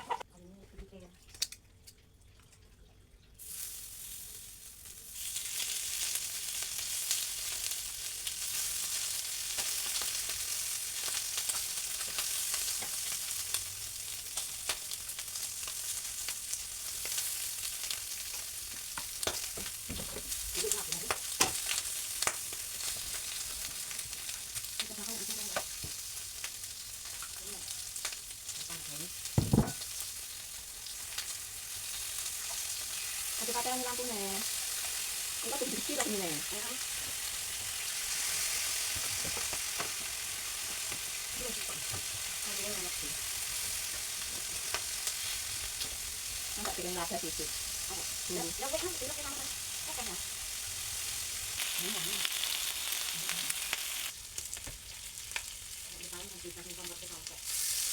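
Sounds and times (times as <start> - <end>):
food sizzling in oil: 3.4 - 57.9
loud knock: 29.4 - 29.8.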